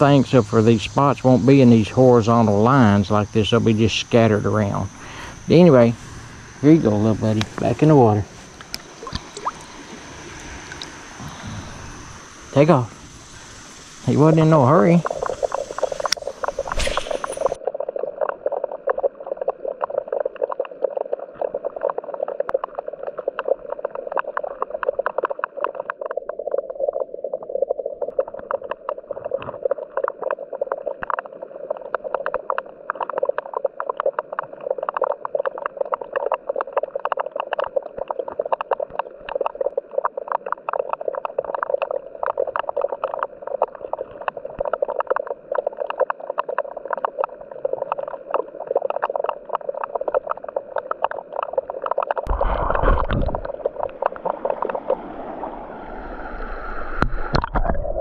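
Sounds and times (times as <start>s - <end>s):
high whine: 0.0s - 17.6s, 52.3s - 58.0s
creek water gurgling over rocks: 0.0s - 55.6s.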